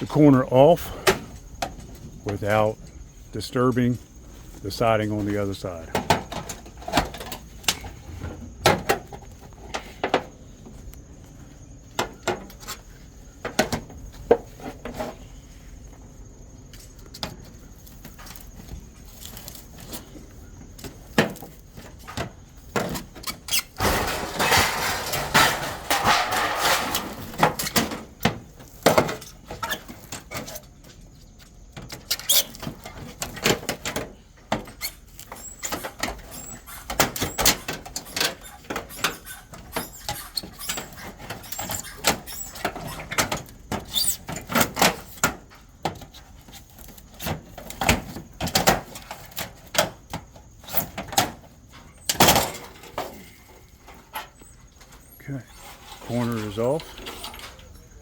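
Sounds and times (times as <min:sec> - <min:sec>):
metal scraping: 0:23.4 - 0:28.0, 0:55.3 - 0:58.0.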